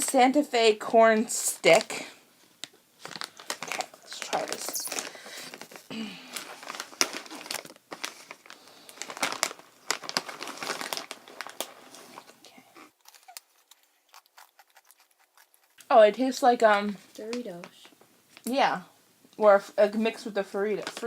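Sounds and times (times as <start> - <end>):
plastic pouch crinkling: 2.6 - 12.4, 13.0 - 15.9.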